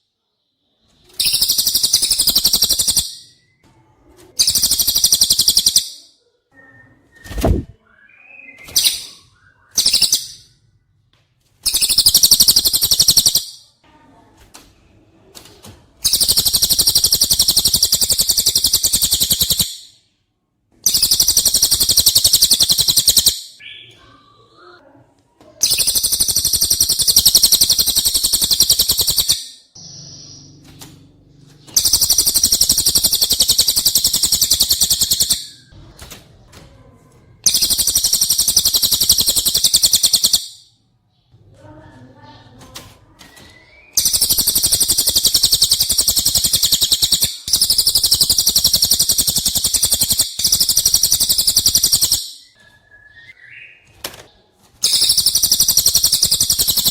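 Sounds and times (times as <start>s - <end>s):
soft bird chirps: 0.0s - 10.9s, 11.6s - 13.8s, 16.0s - 20.2s, 20.8s - 24.9s, 25.6s - 56.9s
songbird rapid trills: 1.2s - 3.2s, 4.4s - 5.9s, 11.7s - 13.5s, 16.1s - 19.8s, 20.9s - 23.4s, 25.6s - 29.5s, 31.7s - 35.6s, 37.5s - 40.6s, 44.0s - 52.3s, 54.8s - 56.9s.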